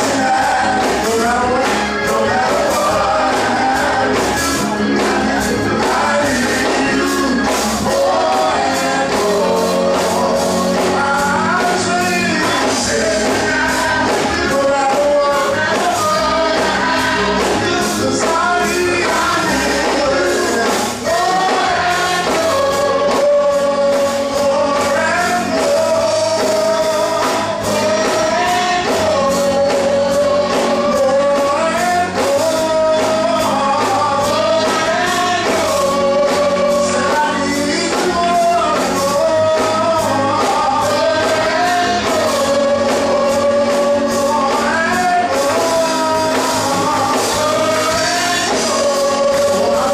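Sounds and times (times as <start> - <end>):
band accompaniment with steady beat: 0.0 - 49.9
voices singing gospel: 0.0 - 49.9.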